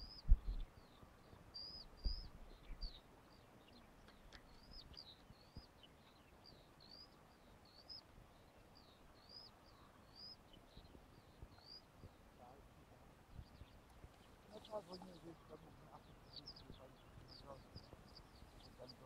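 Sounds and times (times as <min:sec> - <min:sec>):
low thumps: 0:00.0 - 0:00.7
songbird chirping: 0:00.0 - 0:19.0.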